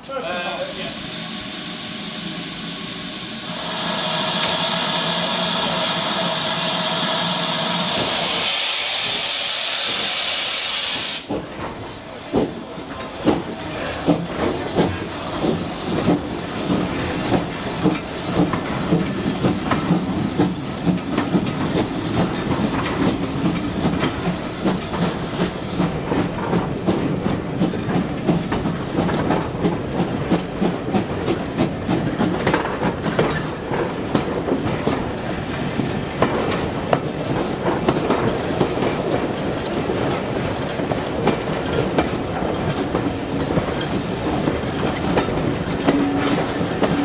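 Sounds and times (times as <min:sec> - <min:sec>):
loud hiss of steam: 0:00.2 - 0:11.4, 0:12.5 - 0:25.9
train wheels clicking over rail joints: 0:04.2 - 0:47.0.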